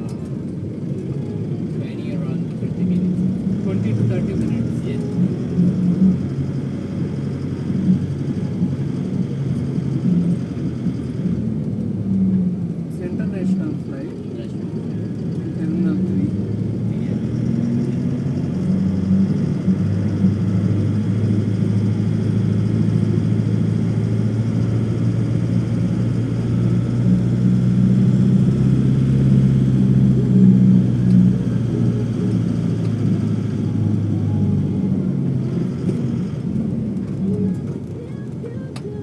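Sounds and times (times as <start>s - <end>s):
vehicle engine and road rumble: 0.0s - 39.0s.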